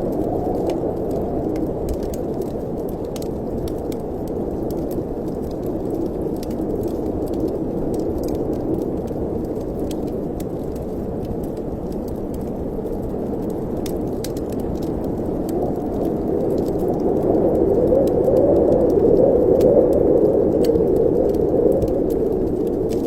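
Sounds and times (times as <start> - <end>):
low rush of wind: 0.0 - 23.0
wood fire crackling and popping: 0.0 - 23.0.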